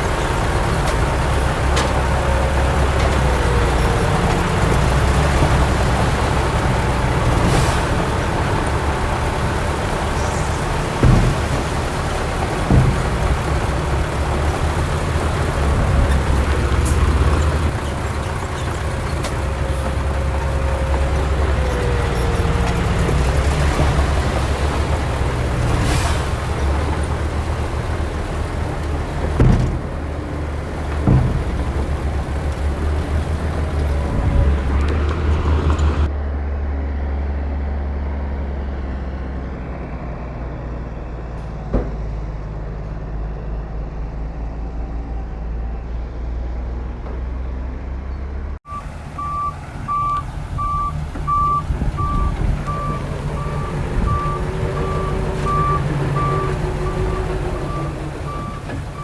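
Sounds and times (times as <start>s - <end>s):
diesel machinery engine rumble: 0.0s - 59.0s
reversing alarm beeping: 48.7s - 59.0s.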